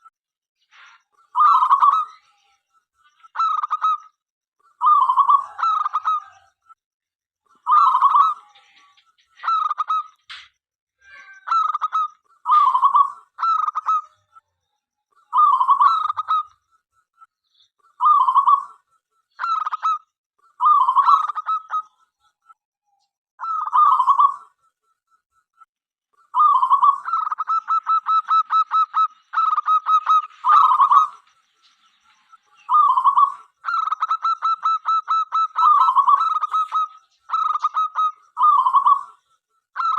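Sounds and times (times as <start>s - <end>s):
dove cooing: 4.8s - 6.5s, 18.0s - 18.8s, 20.6s - 21.9s, 23.4s - 24.5s, 26.3s - 31.2s, 32.6s - 39.2s.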